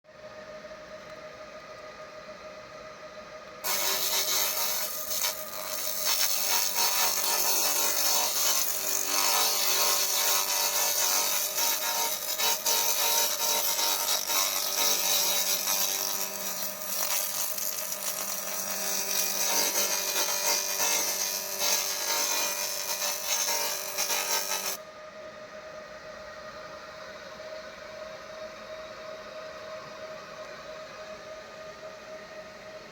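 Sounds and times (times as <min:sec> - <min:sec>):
steady machine hum: 0:00.1 - 0:32.9
laser cleaner crackling hiss: 0:03.7 - 0:15.9.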